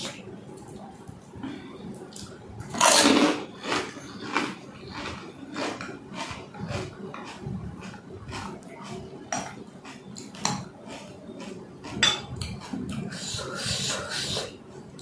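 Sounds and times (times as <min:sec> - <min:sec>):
crunchy chewing: 0:02.1 - 0:13.4.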